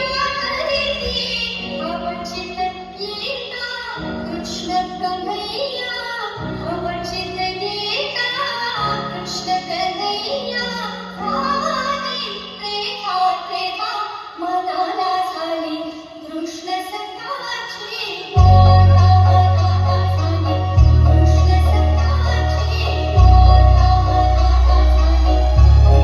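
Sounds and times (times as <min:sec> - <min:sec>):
long held bass notes: 0:18.4 - 0:26.0.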